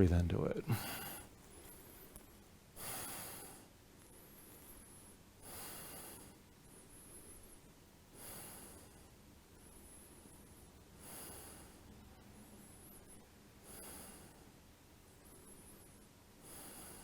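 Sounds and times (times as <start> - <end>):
person breathing deeply: 16.4 - 17.0.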